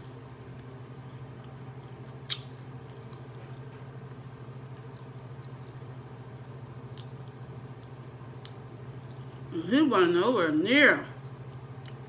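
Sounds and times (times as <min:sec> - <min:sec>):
steady low hum: 0:00.0 - 0:12.0
person chewing: 0:00.5 - 0:09.6, 0:11.5 - 0:12.0.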